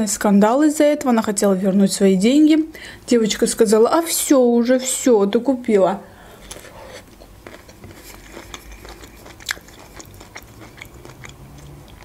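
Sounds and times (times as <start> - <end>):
person crunching broccoli: 6.4 - 12.0.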